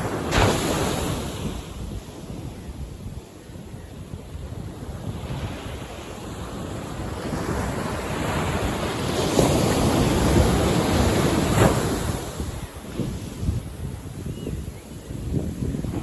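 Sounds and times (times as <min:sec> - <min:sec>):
ocean waves breaking: 0:00.0 - 0:02.5, 0:04.3 - 0:14.2.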